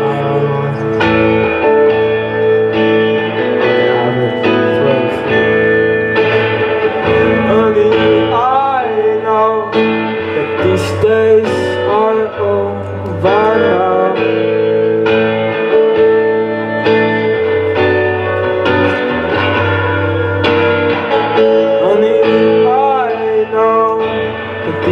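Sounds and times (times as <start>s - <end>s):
man singing: 0.0s - 1.9s, 3.2s - 15.5s, 21.5s - 24.9s
guitar chords ringing: 0.0s - 24.9s.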